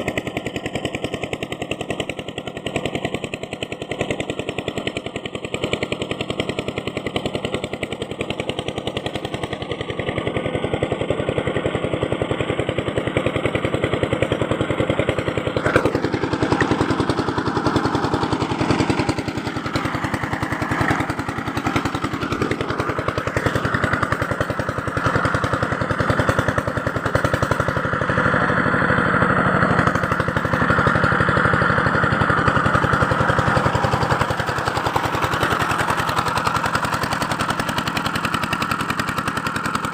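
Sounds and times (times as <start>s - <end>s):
small power tool rattling: 13.0s - 27.9s, 29.6s - 39.9s.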